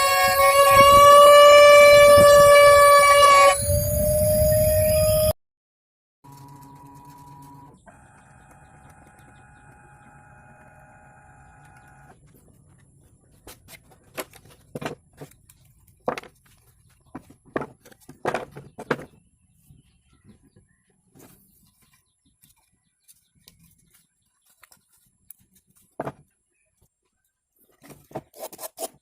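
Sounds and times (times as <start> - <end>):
faint mechanical whine: 6.3 - 13.4.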